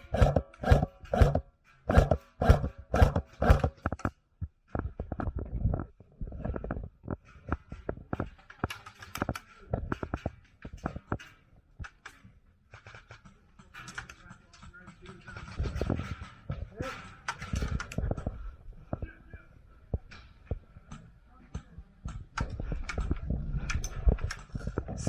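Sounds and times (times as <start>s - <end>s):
sharp clicks and knocks: 0.0s - 5.9s, 6.6s - 19.1s.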